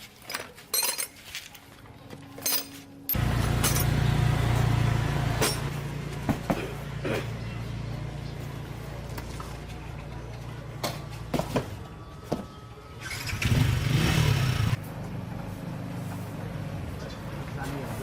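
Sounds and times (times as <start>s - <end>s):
chainsaw revving burst: 13.0s - 14.8s.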